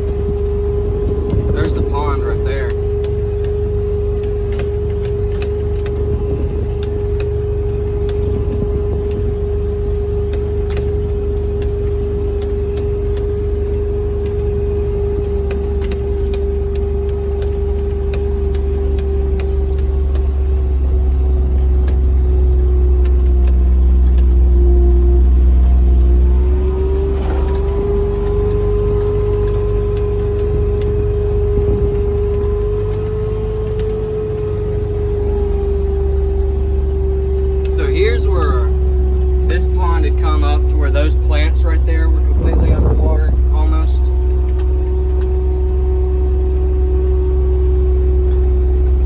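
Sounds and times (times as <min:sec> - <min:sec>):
off-road vehicle driving: 0:00.0 - 0:49.0
knocks and rattles from bumps: 0:26.4 - 0:33.0.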